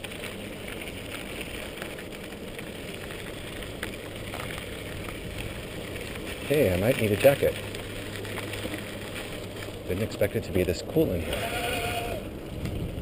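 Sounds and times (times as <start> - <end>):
bike clicks and rattles: 0.0 - 13.0
tyre and wind rush: 11.2 - 13.0.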